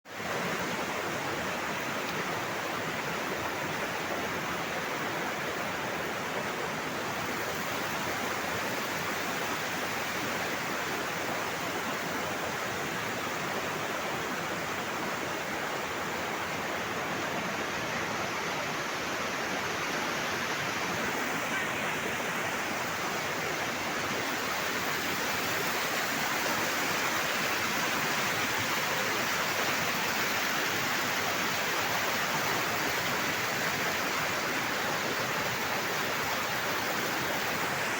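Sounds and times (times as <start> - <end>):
waterfall rushing: 0.1 - 37.9.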